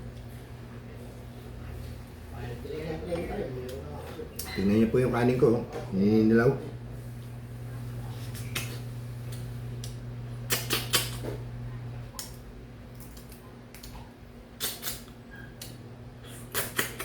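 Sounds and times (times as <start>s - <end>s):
steady low hum: 0.0s - 17.0s
eating clicks and clatters: 8.4s - 11.4s, 12.1s - 15.8s, 16.5s - 17.0s.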